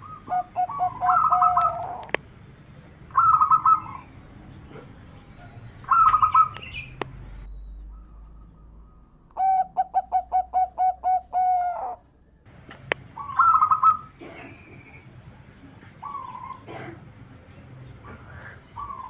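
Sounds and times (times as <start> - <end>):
dove cooing: 0.0 - 2.2, 3.1 - 7.0, 9.4 - 12.0, 12.8 - 19.0.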